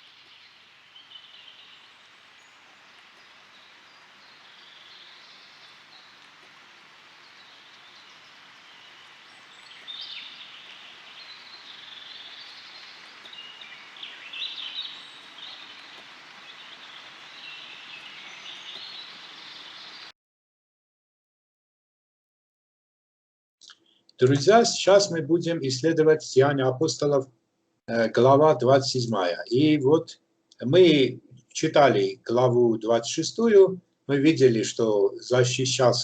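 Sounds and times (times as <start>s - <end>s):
outdoor hiss: 0.0s - 20.1s, 24.2s - 27.2s
birds chirping and singing: 7.3s - 20.1s.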